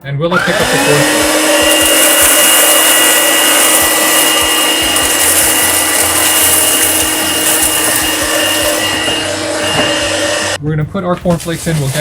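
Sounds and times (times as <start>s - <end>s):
vacuum motor whine: 0.3s - 10.6s
cereal clicking in vacuum: 1.6s - 9.1s.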